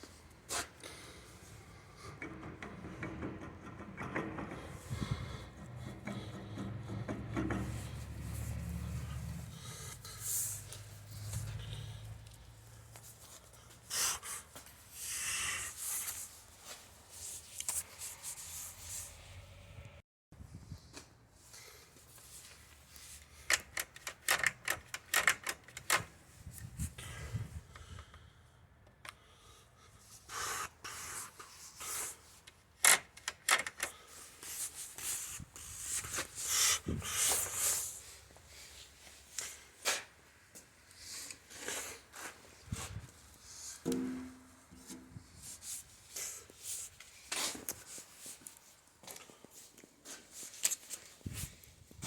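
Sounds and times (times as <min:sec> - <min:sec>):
rubbing and scraping handling noise: 0:01.5 - 0:19.5, 0:30.3 - 0:52.0
hands scraping hard parts: 0:02.0 - 0:11.9.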